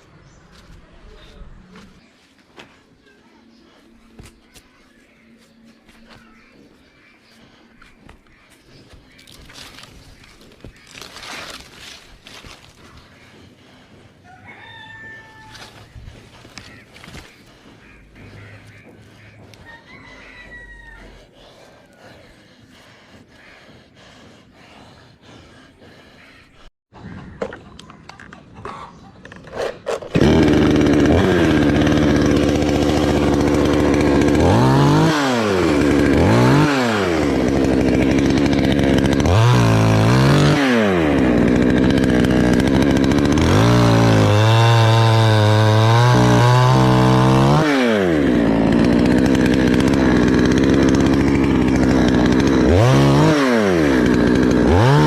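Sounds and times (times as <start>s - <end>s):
chainsaw cutting wood: 9.1s - 13.0s, 14.7s - 21.0s, 29.5s - 55.0s.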